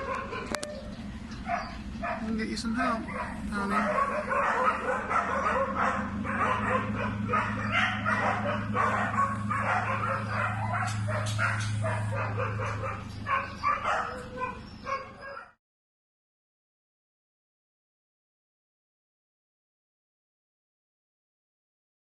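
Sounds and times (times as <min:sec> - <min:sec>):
steady low hum: 0:00.0 - 0:15.2
dog yelping and whining: 0:00.0 - 0:15.6.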